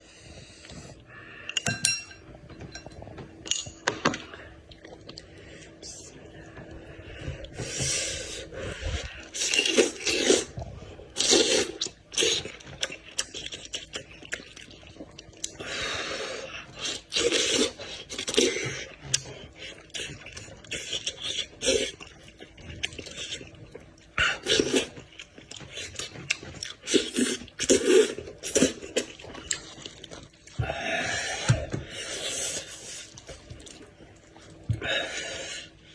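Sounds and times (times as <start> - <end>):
person chewing and smacking: 2.3 - 5.8, 8.9 - 15.6, 16.4 - 34.8.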